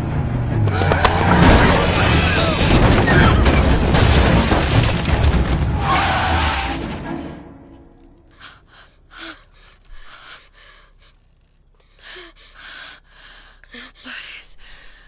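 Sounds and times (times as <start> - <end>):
person gasping and breathing hard: 8.3 - 15.0.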